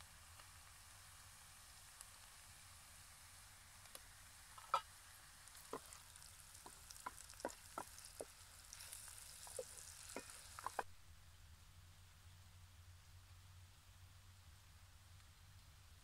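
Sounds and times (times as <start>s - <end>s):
onions sizzling in oil: 0.0s - 10.9s
wooden spatula clacking on pot: 5.6s - 10.9s.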